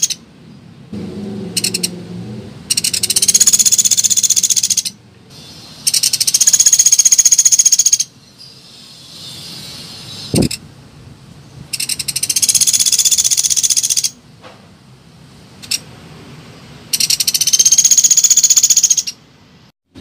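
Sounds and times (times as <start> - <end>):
woodpecker rattling trills: 0.0 - 0.2, 1.6 - 1.9, 2.7 - 5.0, 5.8 - 8.1, 11.7 - 14.2, 16.9 - 19.2.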